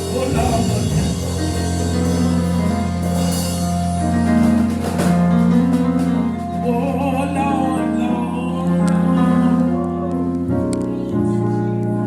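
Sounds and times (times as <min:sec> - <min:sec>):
drums: 0:00.0 - 0:07.2
steady bass: 0:00.0 - 0:12.0.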